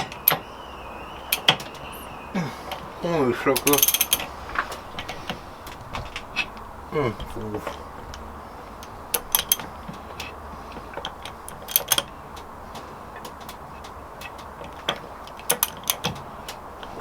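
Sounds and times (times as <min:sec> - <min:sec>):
metal tools clinking: 0:02.4 - 0:08.2.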